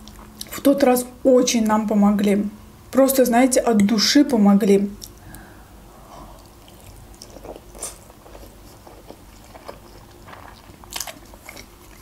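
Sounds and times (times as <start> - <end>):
close-up chewing food: 6.2 - 12.0.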